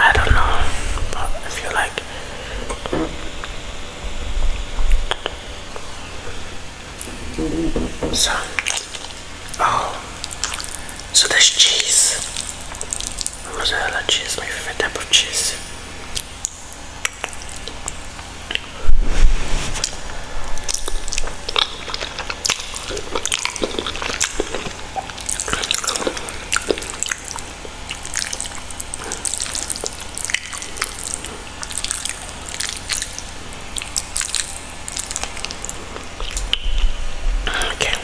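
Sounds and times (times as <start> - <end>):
bump against microphone: 0.0 - 1.5, 2.5 - 3.7, 7.0 - 8.7
sticky noodles clicking: 20.7 - 36.7.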